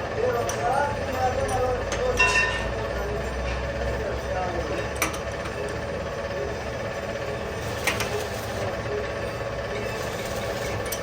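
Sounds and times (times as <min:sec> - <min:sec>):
boring machine cutting steel pipe: 0:00.0 - 0:11.0.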